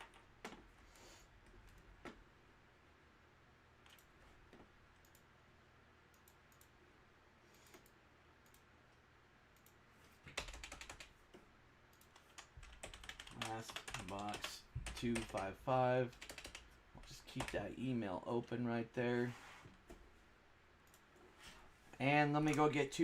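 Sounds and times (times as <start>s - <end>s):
computer keyboard clicks: 3.8s - 4.1s, 9.6s - 11.1s, 11.9s - 15.5s, 16.1s - 17.6s.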